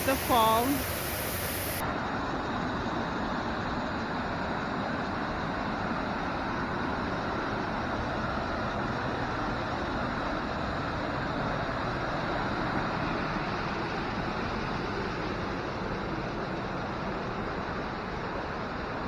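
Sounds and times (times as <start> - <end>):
waterfall rushing: 0.0 - 1.8.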